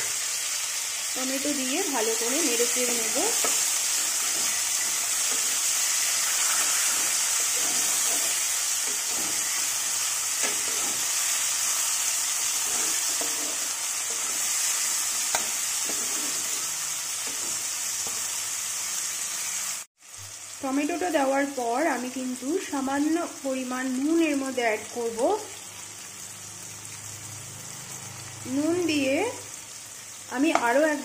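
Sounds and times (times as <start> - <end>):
vegetables sizzling in oil: 0.0 - 31.0
spatula stirring and scraping pan: 1.4 - 18.4.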